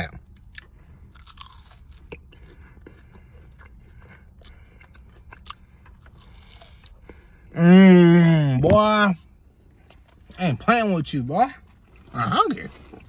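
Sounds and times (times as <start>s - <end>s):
chewing french fries: 0.0s - 7.6s
low steady hum: 0.0s - 13.0s.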